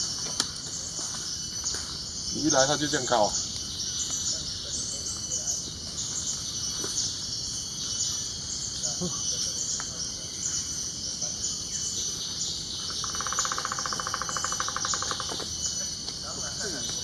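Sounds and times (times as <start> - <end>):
insects buzzing shrilly: 0.0 - 17.0.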